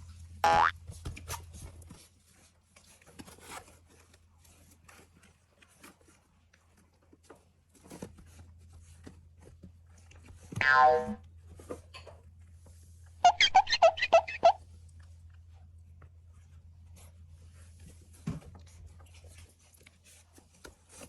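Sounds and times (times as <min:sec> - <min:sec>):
puppy scratching and rustling: 0:00.0 - 0:10.6, 0:14.8 - 0:21.0.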